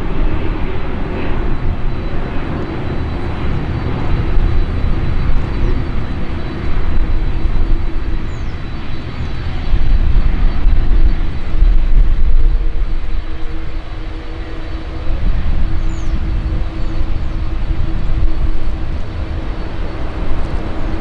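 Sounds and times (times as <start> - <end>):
jet engines rumbling: 0.0 - 21.0.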